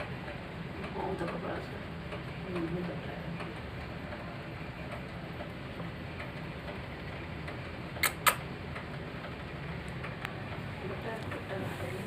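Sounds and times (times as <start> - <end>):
low background noise: 0.0 - 12.0
sharp clicks: 7.4 - 8.9.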